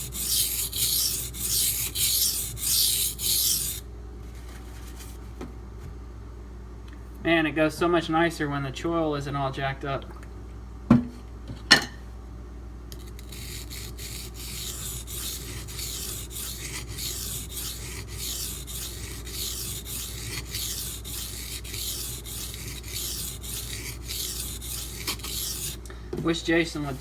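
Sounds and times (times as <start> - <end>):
knife scraping sharpening stone: 0.0 - 3.8, 13.0 - 25.8.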